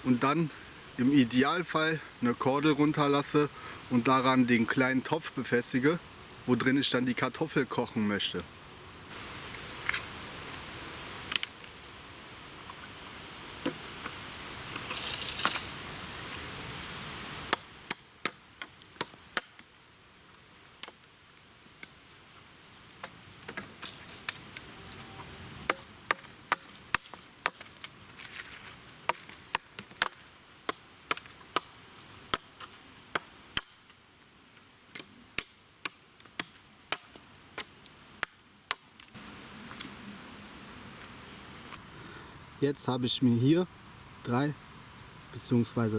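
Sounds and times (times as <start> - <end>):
rustling: 12.5 - 17.6, 21.7 - 25.7, 26.6 - 30.4
blade chopping wood: 25.7 - 27.8.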